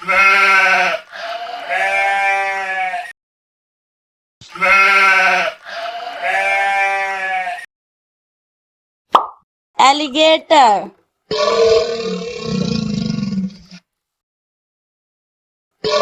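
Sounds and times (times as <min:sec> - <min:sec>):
sheep bleating: 0:00.0 - 0:03.2, 0:04.5 - 0:07.7.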